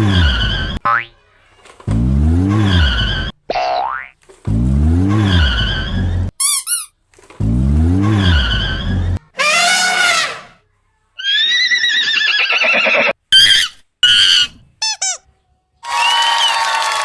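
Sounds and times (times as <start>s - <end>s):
cartoon springy boing: 0.2s - 1.2s, 2.0s - 4.6s.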